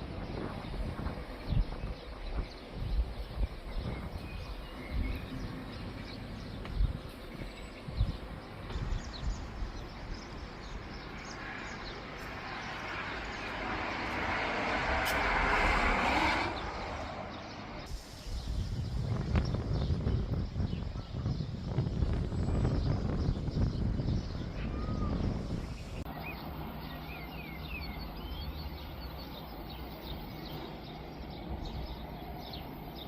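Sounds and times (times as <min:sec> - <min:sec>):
wind thumping on microphone: 0:00.0 - 0:05.6, 0:06.5 - 0:10.3, 0:12.9 - 0:26.1
broad rushing noise: 0:10.5 - 0:19.8.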